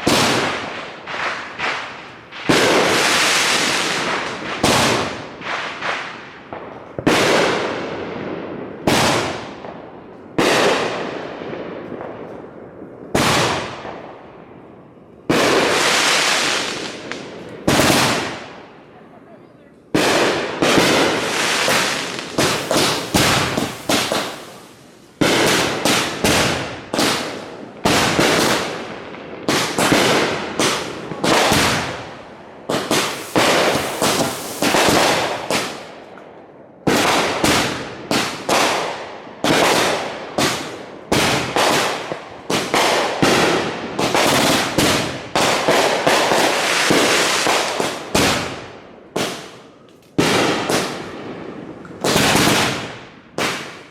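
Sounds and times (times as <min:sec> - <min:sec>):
fireworks bangs: 0:00.0 - 0:53.9.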